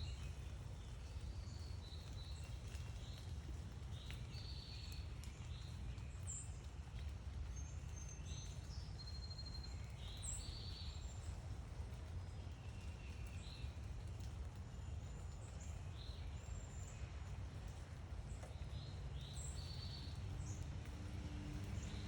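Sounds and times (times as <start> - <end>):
small birds chirping: 12.3 - 22.0.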